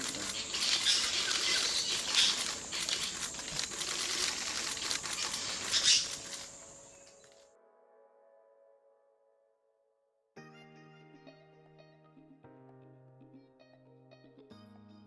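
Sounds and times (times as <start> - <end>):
insects buzzing: 0.0 - 7.4
crackling and rustling clicks: 0.0 - 7.5
faint music: 0.0 - 9.2.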